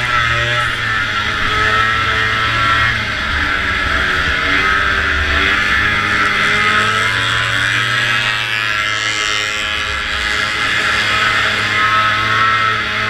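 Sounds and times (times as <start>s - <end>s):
snowmobile engine at high revs: 0.0s - 13.0s.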